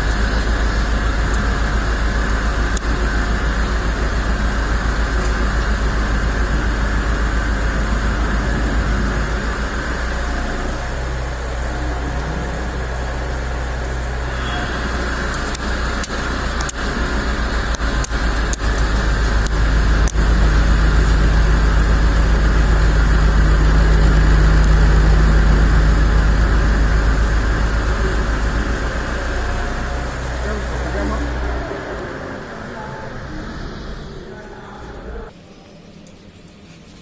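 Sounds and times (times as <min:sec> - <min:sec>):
machine hum: 0:00.0 - 0:37.0
steady machine tone: 0:00.0 - 0:37.0
sharp clicks: 0:15.3 - 0:17.0.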